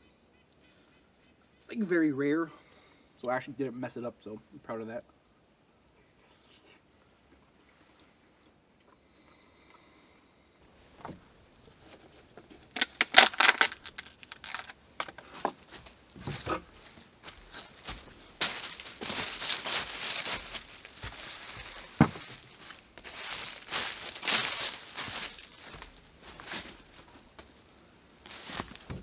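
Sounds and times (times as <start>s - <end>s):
rustling and crinkling handling noise: 10.7s - 29.0s.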